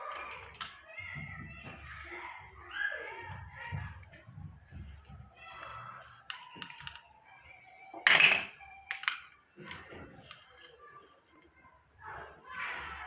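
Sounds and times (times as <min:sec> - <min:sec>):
faint background music: 0:00.0 - 0:13.0.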